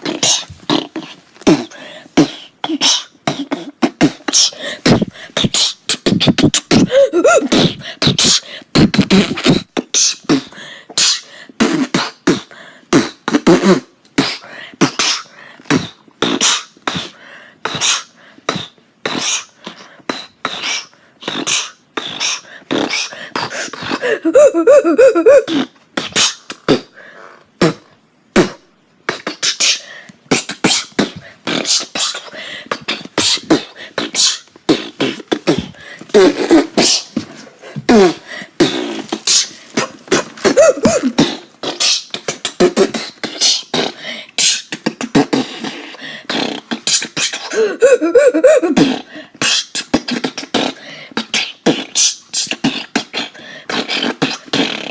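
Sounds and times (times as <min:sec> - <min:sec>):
beatboxing vocal clicks: 0:00.0 - 0:24.1, 0:25.5 - 0:26.9, 0:27.6 - 0:37.2, 0:37.8 - 0:47.6, 0:48.8 - 0:54.9.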